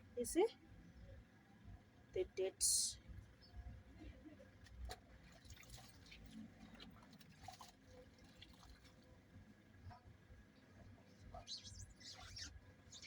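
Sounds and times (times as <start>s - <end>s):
water dripping and trickling: 4.7s - 9.3s.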